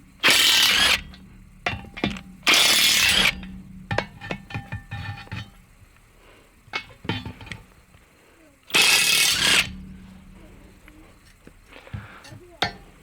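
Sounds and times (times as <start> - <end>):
tools clinking on wheel rim: 0.4 - 5.7, 6.7 - 8.0, 9.6 - 13.0
short bursts of hissing: 8.7 - 9.8.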